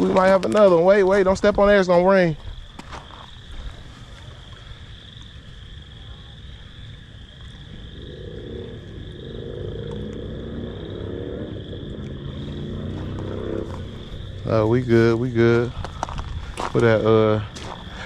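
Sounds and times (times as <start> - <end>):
high insect trill: 0.0 - 18.0
low droning motor: 7.5 - 17.1.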